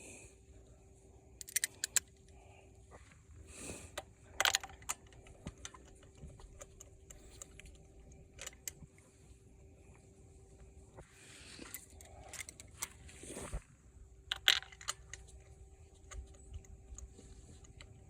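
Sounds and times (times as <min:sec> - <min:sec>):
metal parts rattling: 0:01.4 - 0:02.0, 0:04.4 - 0:07.7, 0:14.3 - 0:15.2
metallic tool clicks: 0:01.4 - 0:02.2.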